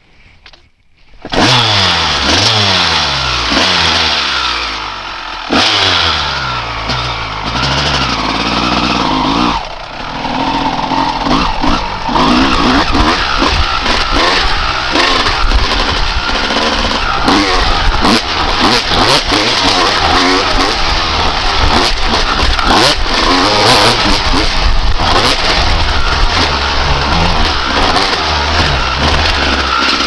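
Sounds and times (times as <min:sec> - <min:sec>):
two-stroke motorcycle engine revving: 0:01.2 - 0:30.0.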